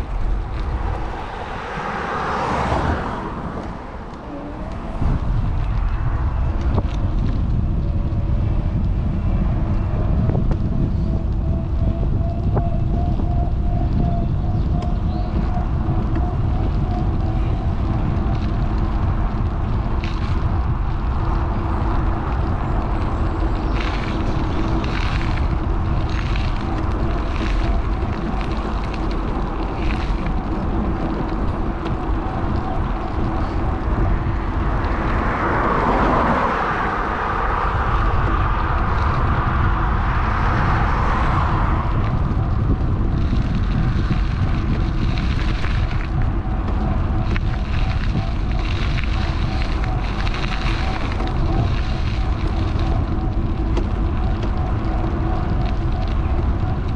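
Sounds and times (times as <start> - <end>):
vehicle passing by: 0.0 - 10.2, 15.8 - 56.9
road traffic passing: 0.0 - 56.9
wind rushing over microphone: 0.0 - 56.9.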